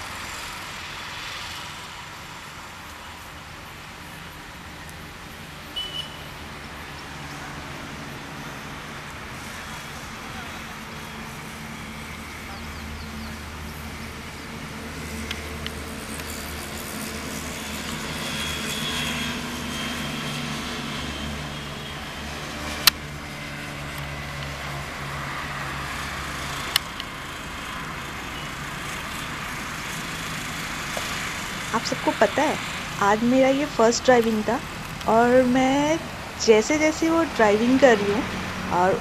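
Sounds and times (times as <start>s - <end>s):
sharp clicks: 26.7s - 27.1s.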